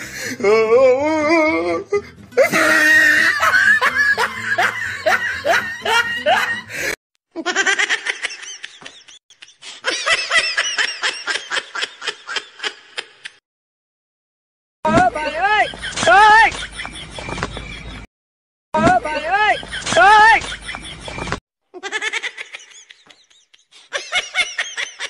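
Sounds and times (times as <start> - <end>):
music: 0.0 - 6.9
bursts of laughter: 2.4 - 13.4, 19.1 - 25.0.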